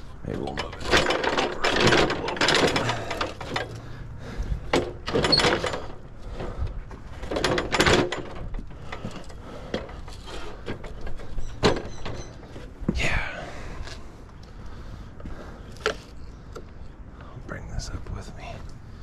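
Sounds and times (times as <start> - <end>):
hardware knocking and rattling: 0.3 - 3.9, 4.6 - 6.5, 7.1 - 12.5.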